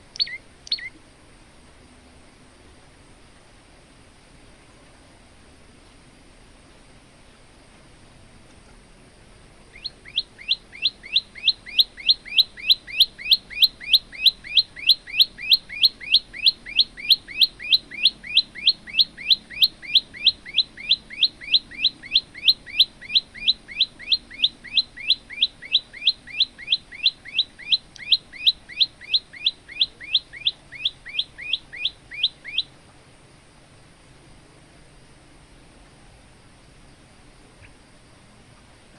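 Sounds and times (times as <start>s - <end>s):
bird singing sweeping chirps: 0.0s - 1.0s, 9.7s - 32.7s.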